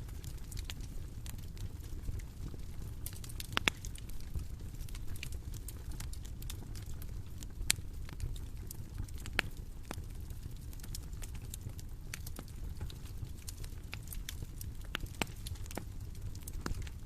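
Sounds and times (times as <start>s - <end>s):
bonfire crackling: 0.0s - 17.0s
low rumble of flames: 0.0s - 17.0s
sharp pops of fire: 3.0s - 4.1s, 12.1s - 17.0s.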